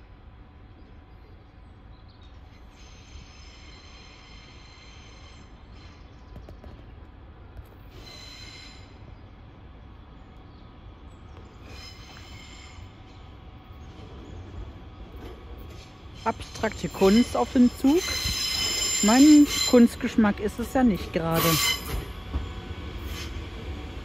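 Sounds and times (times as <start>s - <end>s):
train rumbling: 0.0s - 24.0s
high-pitched train squeals: 2.6s - 6.0s, 7.9s - 9.1s, 11.6s - 13.2s, 16.2s - 23.7s.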